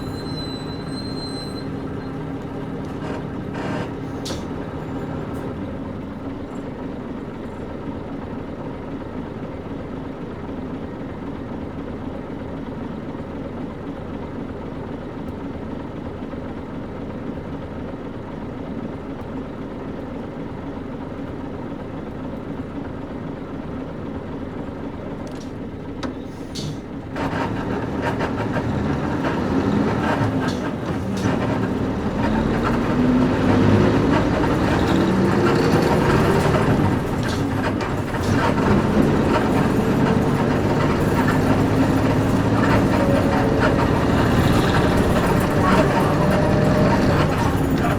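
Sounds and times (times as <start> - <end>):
bus diesel engine: 0.0 - 47.9.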